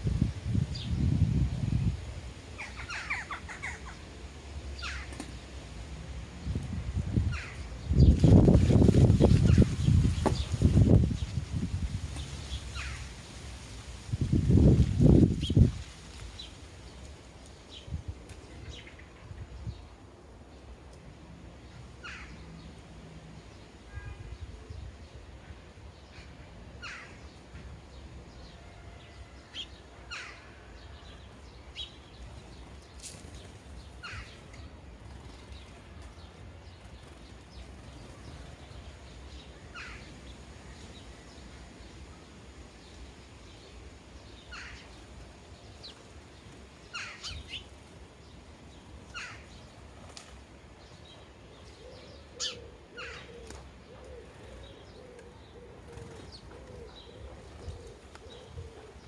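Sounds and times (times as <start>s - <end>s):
sparrows chirping: 0.0s - 20.8s, 21.6s - 59.0s
dove cooing: 51.7s - 59.0s.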